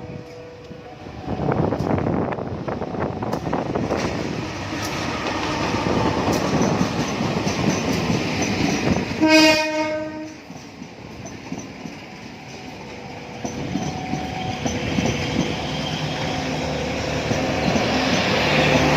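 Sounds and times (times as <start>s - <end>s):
train rumbling over rails: 0.0s - 18.9s
train horn blast: 9.2s - 10.4s.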